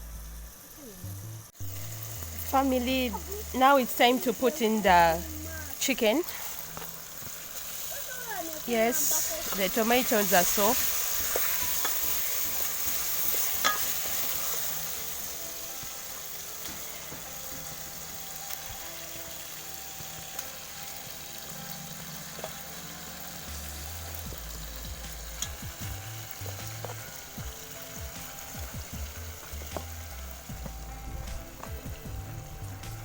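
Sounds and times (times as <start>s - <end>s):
background music with bass: 0.0s - 3.7s, 19.0s - 33.0s
food sizzling in oil: 0.0s - 33.0s.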